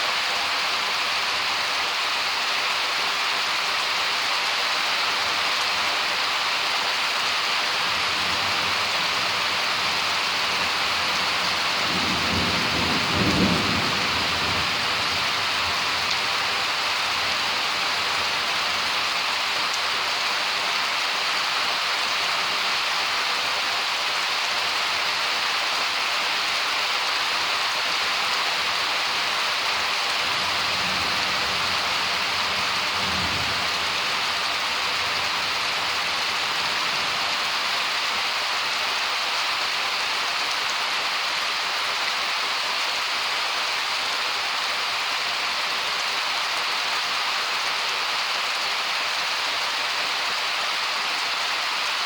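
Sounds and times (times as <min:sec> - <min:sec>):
heavy rain: 0:00.0 - 0:52.0
thunder rumbling: 0:08.4 - 0:16.0, 0:30.3 - 0:36.9.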